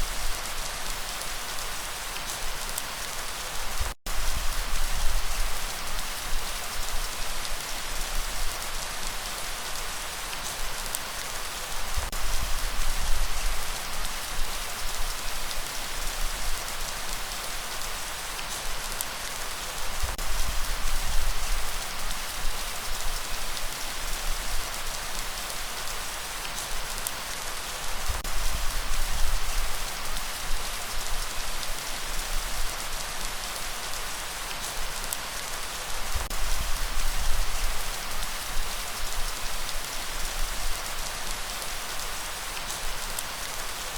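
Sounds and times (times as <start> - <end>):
heavy rain hiss: 0.0 - 43.9.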